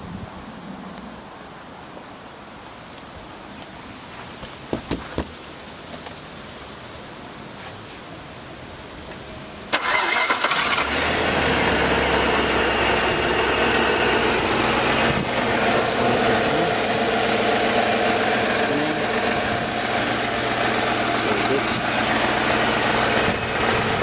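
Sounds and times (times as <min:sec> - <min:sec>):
car starter cranking: 0:09.7 - 0:24.0
car engine idling: 0:09.8 - 0:24.0.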